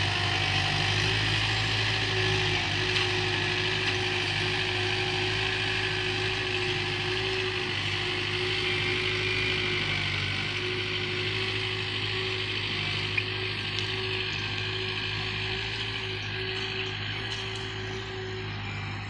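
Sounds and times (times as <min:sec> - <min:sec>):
machine rattling and whining: 0:00.0 - 0:19.0.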